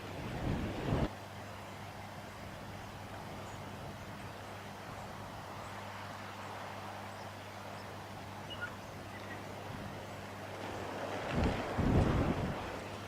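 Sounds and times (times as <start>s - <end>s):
faint short bird chirps: 8.5s - 9.4s.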